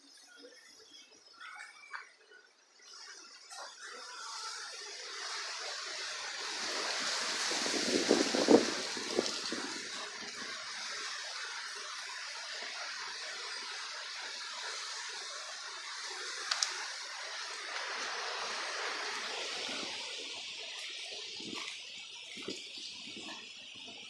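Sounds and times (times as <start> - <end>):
strong wind rushing: 6.5 - 10.5.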